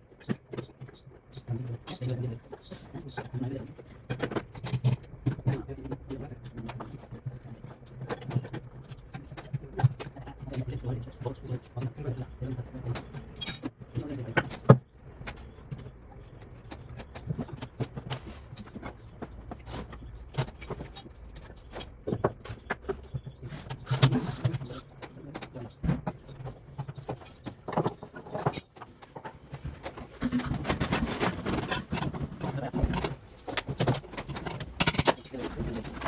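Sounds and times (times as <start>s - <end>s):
metallic clinking and knocking: 13.1s - 13.7s, 18.6s - 22.8s, 26.9s - 29.2s, 30.3s - 36.0s.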